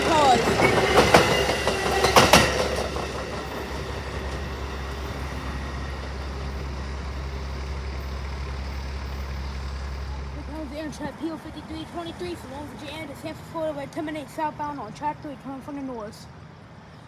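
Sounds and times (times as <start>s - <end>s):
train wheels clacking on rail joints: 0.0s - 10.1s
train rumbling: 0.0s - 15.4s.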